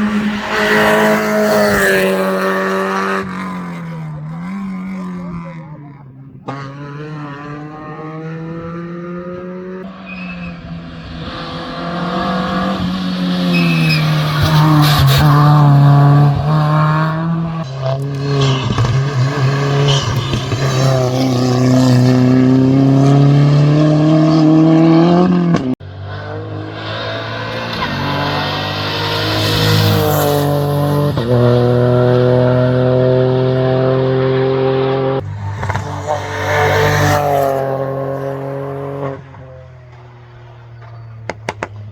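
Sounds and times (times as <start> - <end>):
race car engine accelerating: 0.0 - 41.9.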